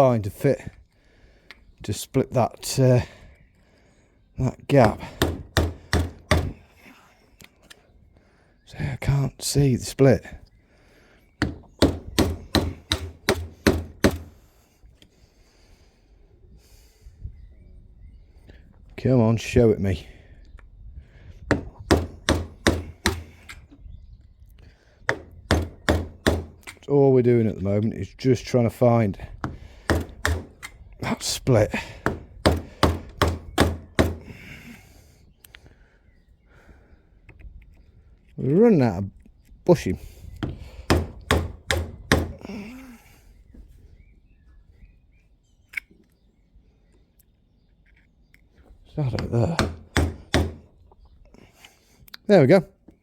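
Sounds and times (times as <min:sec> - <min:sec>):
hammer blows on a tool: 0:04.8 - 0:06.6, 0:11.4 - 0:14.3, 0:21.5 - 0:23.5, 0:25.1 - 0:26.7, 0:29.4 - 0:30.7, 0:32.0 - 0:34.4, 0:40.4 - 0:42.5, 0:49.2 - 0:50.7
hammer striking screwdriver: 0:11.4 - 0:14.3, 0:21.5 - 0:23.4, 0:29.4 - 0:30.7.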